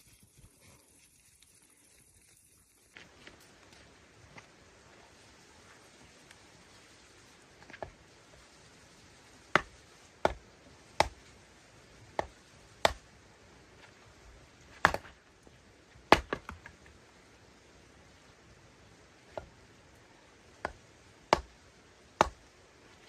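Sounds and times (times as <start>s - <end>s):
sharp chopping knocks: 9.6s - 10.4s, 12.2s - 13.0s, 14.8s - 15.1s, 16.1s - 16.6s.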